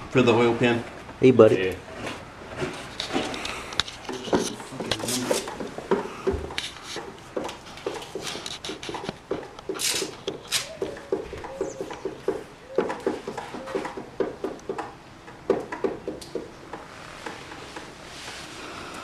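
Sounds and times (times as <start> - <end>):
tools clicking and knocking: 3.0 - 17.4.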